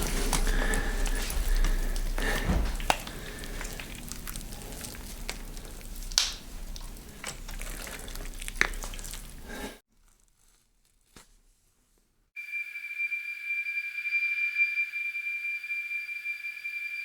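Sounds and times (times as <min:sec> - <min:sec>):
crackling and crinkling: 0:00.0 - 0:12.3.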